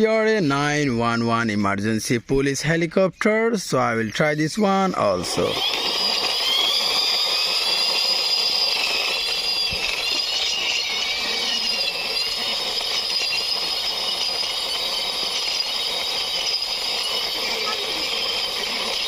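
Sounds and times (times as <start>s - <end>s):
rattling hiss: 3.8s - 19.0s
mechanical whirring with high whine: 4.3s - 19.0s.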